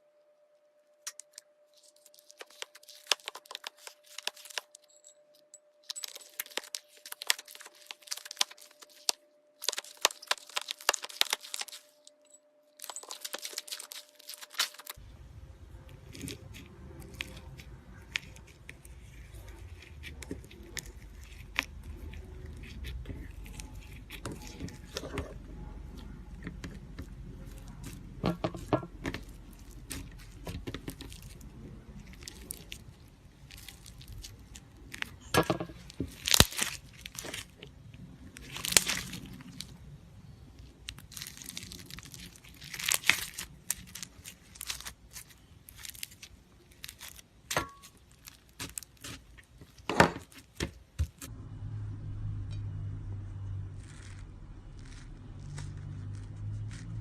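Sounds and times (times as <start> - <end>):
slime popping and crackling: 1.0 - 4.8, 5.8 - 12.0, 12.8 - 15.0, 15.9 - 39.8, 40.6 - 51.3, 53.6 - 57.0.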